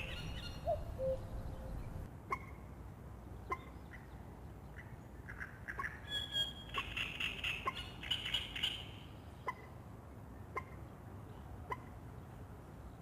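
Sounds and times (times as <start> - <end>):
songbirds chirping: 0.0 - 2.1
cuckoo call: 0.0 - 2.5.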